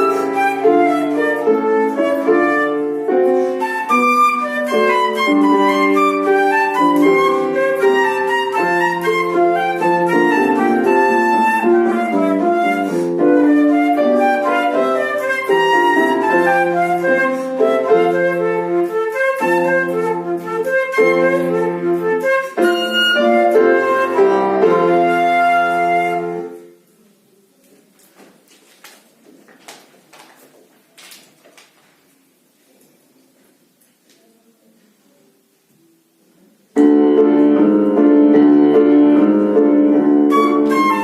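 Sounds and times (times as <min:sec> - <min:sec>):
flute playing lively melody: 0:00.0 - 0:26.7, 0:39.8 - 0:41.0
piano accompaniment: 0:00.0 - 0:26.9, 0:36.7 - 0:41.0
faint room noise: 0:00.0 - 0:41.0.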